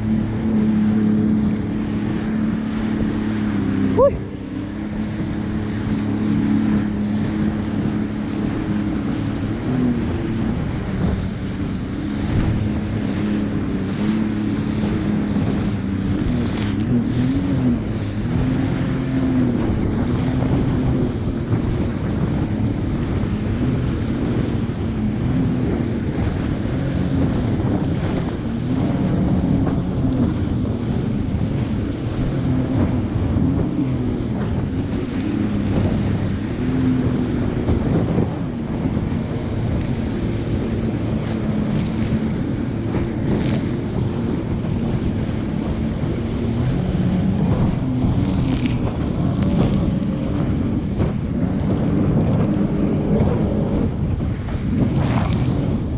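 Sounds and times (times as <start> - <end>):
jet ski engine running: 0.0 - 55.9
water rushing: 0.0 - 55.9
wind buffeting microphone: 0.0 - 55.9.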